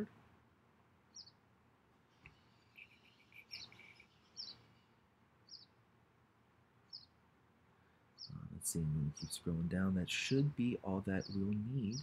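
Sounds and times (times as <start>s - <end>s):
bird chirps: 1.1s - 1.4s, 2.1s - 5.8s, 6.8s - 7.2s, 8.2s - 12.0s.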